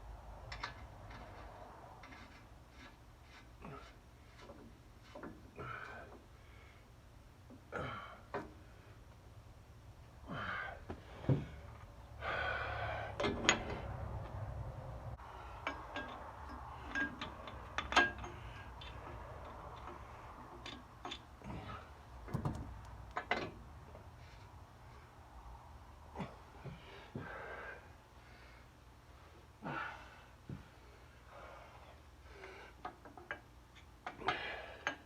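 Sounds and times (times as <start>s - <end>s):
metal tools clinking and knocking: 15.6s - 21.3s.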